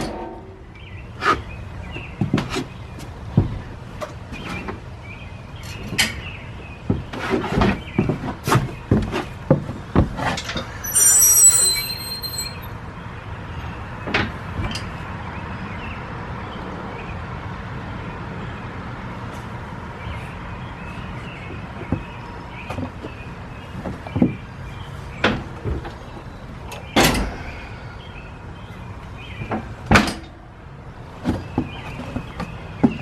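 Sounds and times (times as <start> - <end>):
high metallic ring: 10.7 - 12.7.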